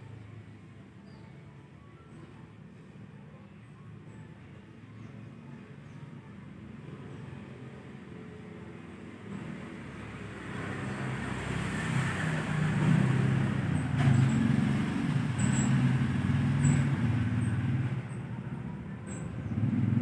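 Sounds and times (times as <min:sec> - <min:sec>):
vehicle engine running: 0:12.4 - 0:20.0.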